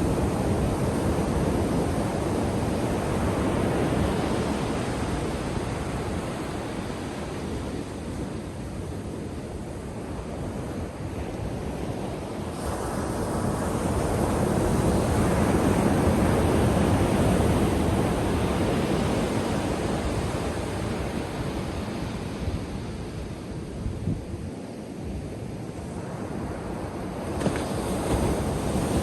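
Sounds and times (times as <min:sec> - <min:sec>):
wind on microphone: 0:00.0 - 0:29.0.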